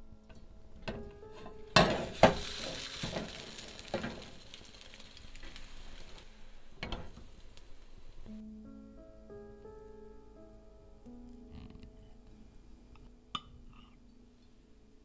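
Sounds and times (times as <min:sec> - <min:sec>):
cake sizzling in a frying pan: 0:01.2 - 0:08.4.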